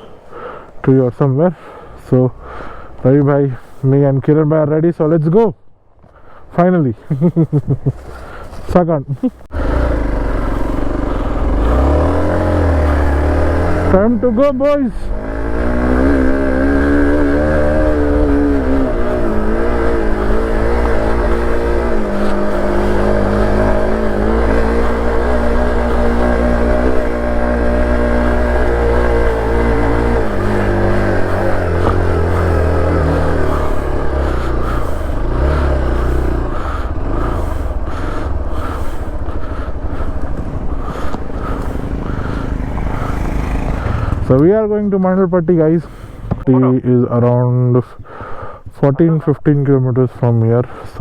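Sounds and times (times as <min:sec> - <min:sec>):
motorcycle engine riding: 0:07.0 - 0:49.3
engine knocks and rattles: 0:09.4 - 0:45.2.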